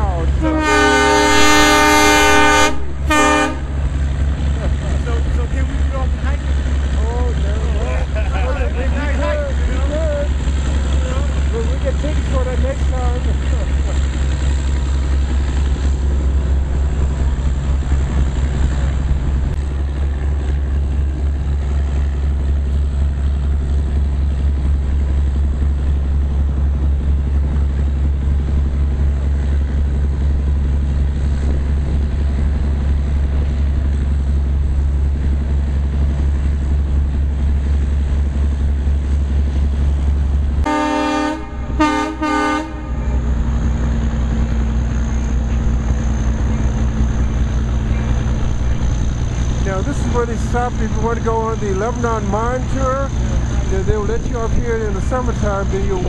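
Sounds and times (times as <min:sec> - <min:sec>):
train rumbling: 0:00.0 - 0:56.0
locomotive horn blasts: 0:00.3 - 0:03.8, 0:40.6 - 0:43.3.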